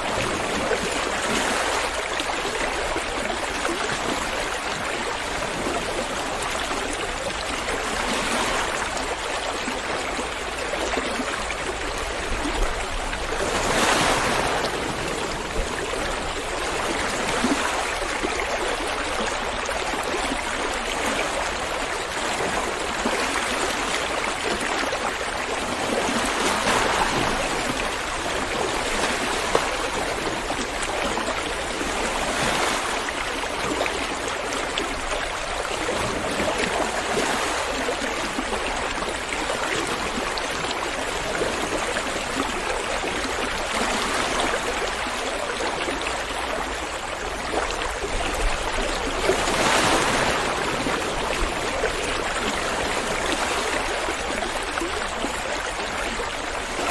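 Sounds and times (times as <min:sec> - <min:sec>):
river water flowing over stones: 0:00.0 - 0:56.9.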